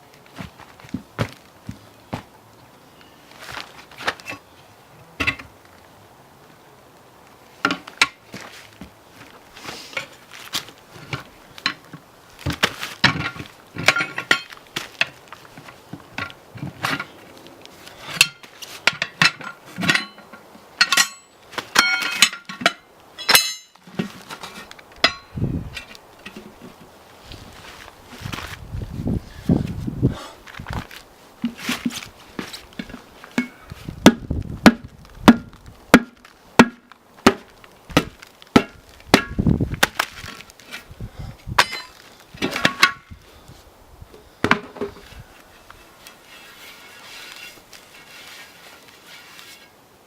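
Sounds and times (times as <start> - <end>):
metal tools clanking on wheel rim: 5.2 - 5.5, 10.9 - 17.2, 17.9 - 26.8, 31.4 - 33.7, 41.6 - 43.1.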